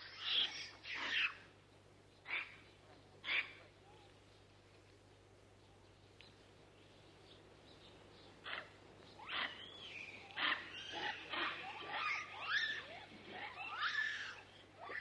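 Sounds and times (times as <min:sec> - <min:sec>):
low steady hum: 0:00.0 - 0:15.0
high sliding animal calls: 0:10.3 - 0:15.0.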